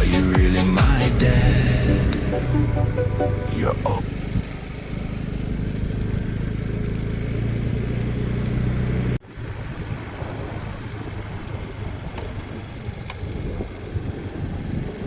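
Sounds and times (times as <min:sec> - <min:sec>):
rough noisy rumble: 0:00.0 - 0:07.2
vehicle engine rumble: 0:00.0 - 0:15.0.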